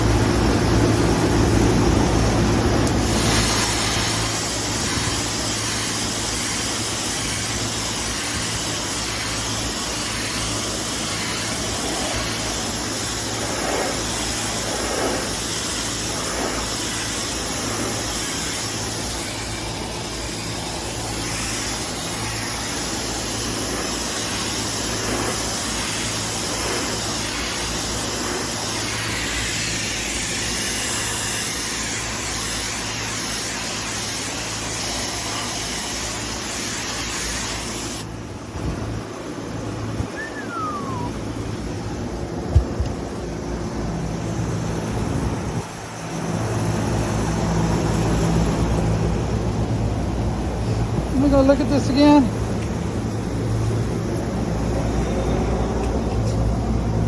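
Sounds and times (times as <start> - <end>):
low hum: 38.2 - 51.1
machinery whooshing: 38.4 - 55.8.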